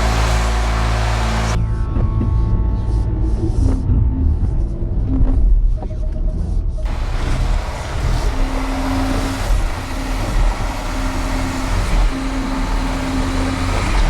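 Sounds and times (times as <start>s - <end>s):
car engine straining: 0.0s - 1.6s, 6.9s - 14.0s
humming tone: 0.0s - 1.6s, 6.9s - 14.0s
steady hiss: 6.9s - 11.6s.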